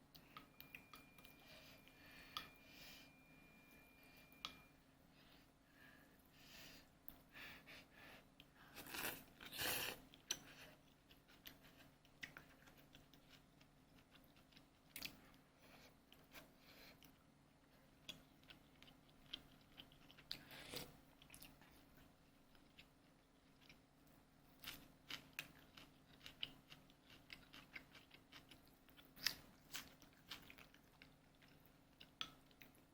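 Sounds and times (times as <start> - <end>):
faint crunching and light clicking: 8.4 - 32.9.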